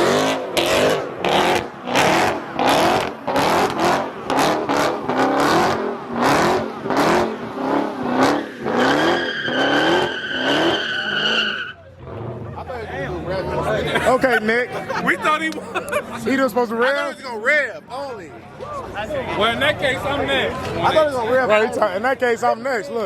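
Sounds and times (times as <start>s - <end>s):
car engine revving: 0.0s - 13.8s
tyre squeal: 8.4s - 11.9s.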